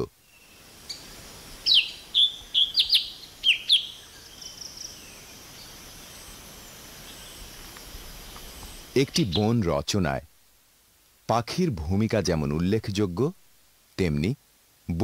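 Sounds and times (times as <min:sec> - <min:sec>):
bird chirping: 0:00.0 - 0:09.6
faint forest hiss: 0:00.0 - 0:15.0.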